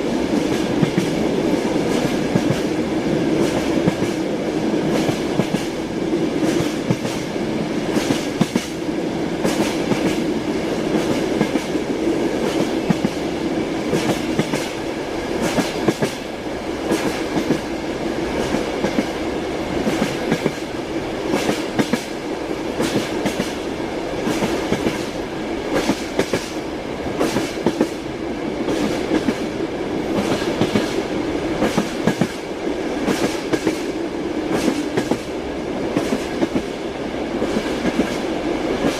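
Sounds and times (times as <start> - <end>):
train wheels clattering on rail joints: 0.3 - 1.2, 1.8 - 5.8, 6.4 - 7.3, 7.9 - 8.8, 9.4 - 10.3, 10.9 - 13.2, 13.9 - 17.7, 18.3 - 19.2, 19.8 - 22.2, 22.8 - 23.6, 24.2 - 26.6, 27.2 - 28.0, 28.6 - 31.0, 31.6 - 36.8.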